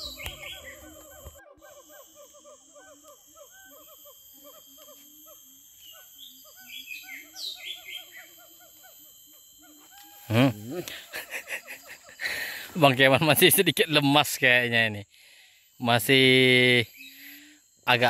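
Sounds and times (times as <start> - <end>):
birds whistling: 0.0 - 9.0, 16.8 - 17.6
high insect drone: 0.0 - 18.0.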